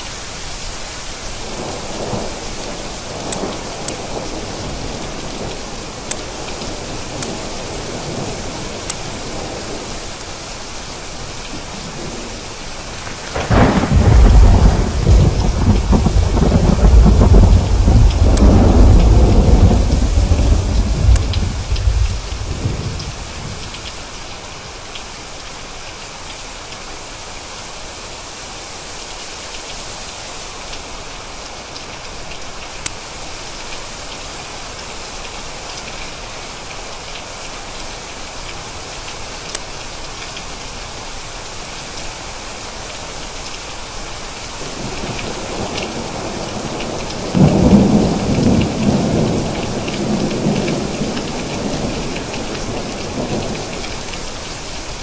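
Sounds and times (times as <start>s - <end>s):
rain falling: 0.0s - 55.0s
thunder rumbling and cracking: 11.5s - 24.0s, 44.6s - 55.0s.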